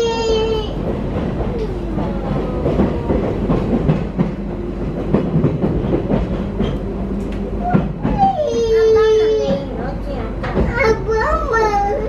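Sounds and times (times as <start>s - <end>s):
train rumble and hum: 0.0s - 12.0s
wheels clicking on rails: 0.0s - 12.0s.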